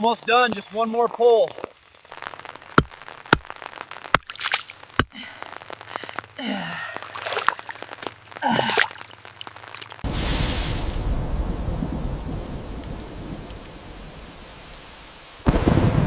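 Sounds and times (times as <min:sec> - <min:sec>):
person sighing: 0:05.0 - 0:07.2, 0:08.4 - 0:09.0
thunder rumbling: 0:10.0 - 0:16.0.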